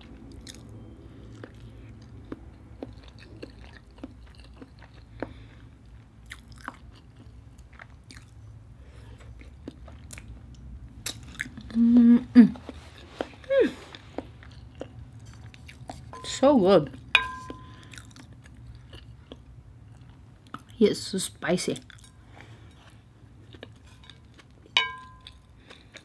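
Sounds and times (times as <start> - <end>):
wet chewing: 0.2 - 8.4, 12.6 - 16.1.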